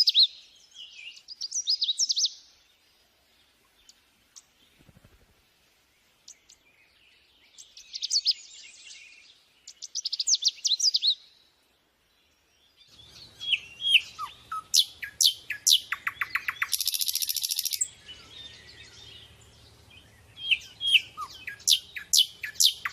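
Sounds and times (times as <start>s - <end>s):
sunbird chirping: 0.0s - 22.9s
buzzy bird trill: 13.3s - 17.9s.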